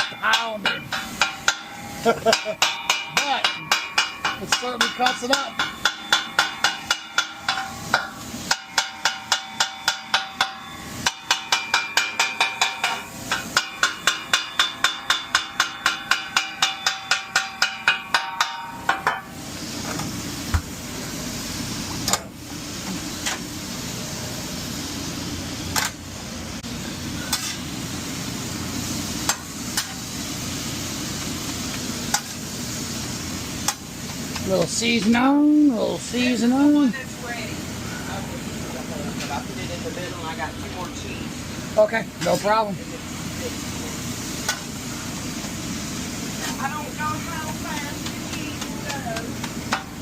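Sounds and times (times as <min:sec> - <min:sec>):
metal spatulas clanking on griddle: 0:00.0 - 0:19.4, 0:25.7 - 0:26.0, 0:27.2 - 0:27.7, 0:29.2 - 0:30.1, 0:32.1 - 0:32.4, 0:33.6 - 0:35.2, 0:44.4 - 0:44.7, 0:47.8 - 0:50.0
meat sizzling on griddle: 0:00.0 - 0:50.0.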